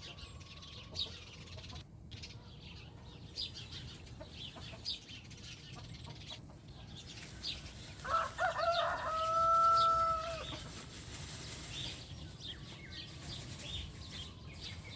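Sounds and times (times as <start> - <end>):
rooster crowing: 8.0 - 10.5.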